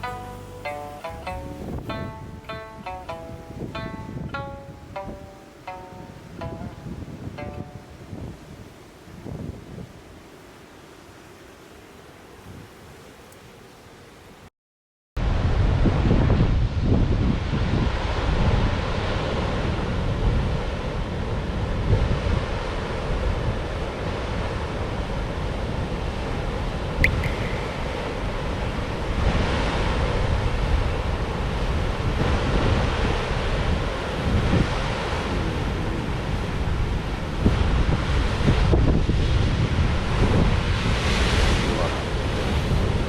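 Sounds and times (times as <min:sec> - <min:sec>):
rumbling surf: 0:00.0 - 0:14.4, 0:15.2 - 0:43.0
wind buffeting microphone: 0:01.3 - 0:05.4, 0:06.0 - 0:10.2, 0:15.2 - 0:43.0
sharp high chirp: 0:27.0 - 0:28.7.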